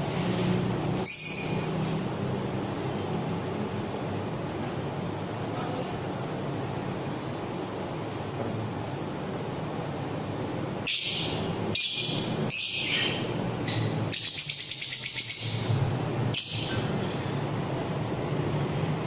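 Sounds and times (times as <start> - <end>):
parrots calling shrilly: 1.0 - 1.9, 10.8 - 17.1.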